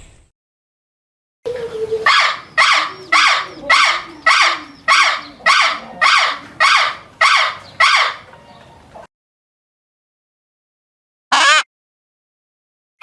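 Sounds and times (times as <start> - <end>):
bird giving harsh calls: 1.9 - 8.3, 11.3 - 11.7.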